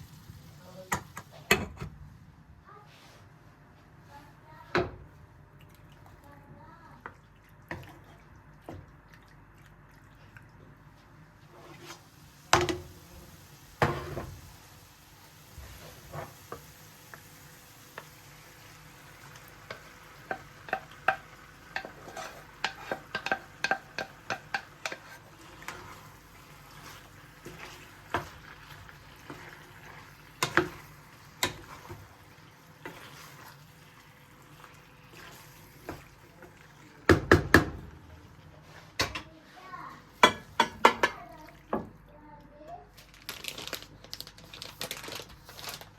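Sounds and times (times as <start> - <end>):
food sizzling: 0.0 - 1.5, 11.5 - 38.9
utensil clinking against a pot: 19.7 - 26.0, 40.2 - 41.3.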